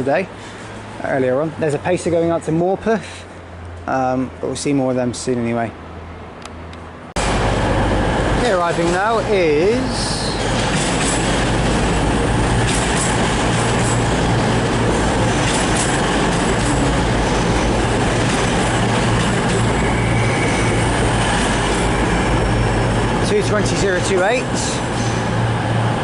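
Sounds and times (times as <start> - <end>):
diesel train engines humming: 0.0 - 26.0
wheel and rail noise: 6.0 - 26.0
wheels clicking over track: 8.4 - 25.3.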